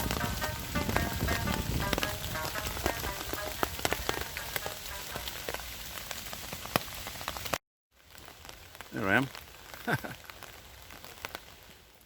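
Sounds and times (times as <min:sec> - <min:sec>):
rain falling: 0:00.0 - 0:12.0
raindrops tapping near microphone: 0:00.0 - 0:12.0.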